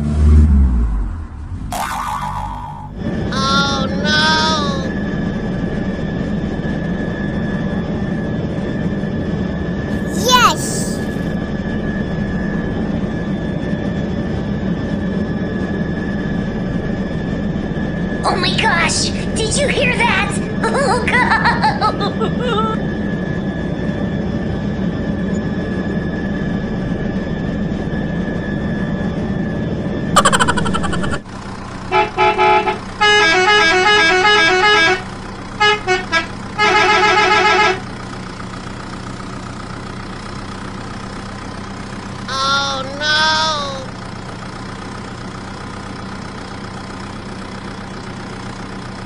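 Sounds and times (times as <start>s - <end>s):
vehicle horn toots: 31.9s - 37.9s
wavering honks: 31.9s - 37.9s.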